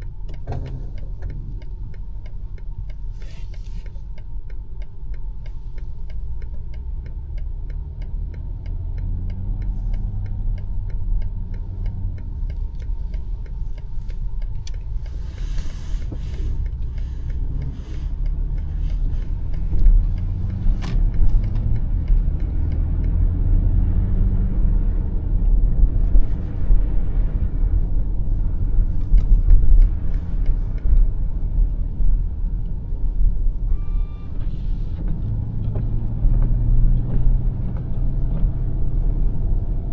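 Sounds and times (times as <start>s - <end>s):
car engine rumble: 0.0s - 39.9s
indicator ticking: 3.8s - 23.2s
short electronic beep: 33.8s - 34.4s.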